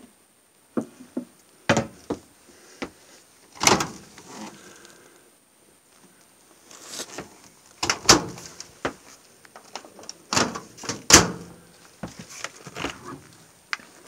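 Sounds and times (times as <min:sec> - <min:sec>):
door clunking: 0:03.6 - 0:04.0.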